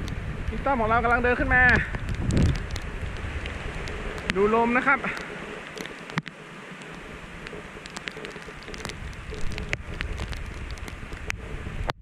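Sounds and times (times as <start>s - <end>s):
rain hissing: 0.0s - 12.0s
raindrops ticking: 0.0s - 12.0s
wind rumble on microphone: 0.0s - 12.0s.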